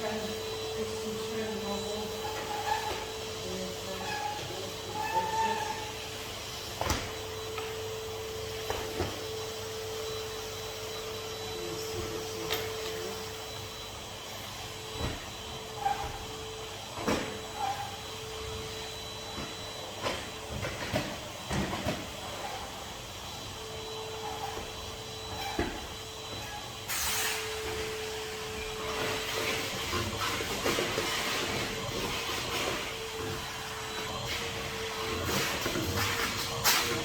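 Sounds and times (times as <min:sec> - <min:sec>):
vacuum cleaner running: 0:00.0 - 0:37.0.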